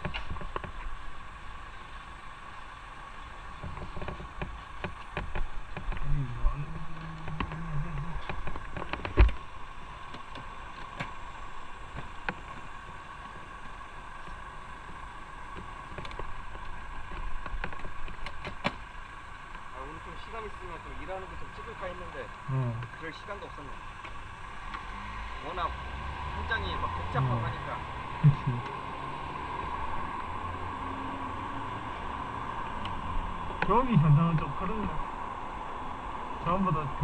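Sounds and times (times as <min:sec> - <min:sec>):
road and wind noise: 0:00.0 - 0:37.0
motorcycle running: 0:03.6 - 0:11.0, 0:24.0 - 0:37.0
short low rising tone: 0:24.8 - 0:34.2.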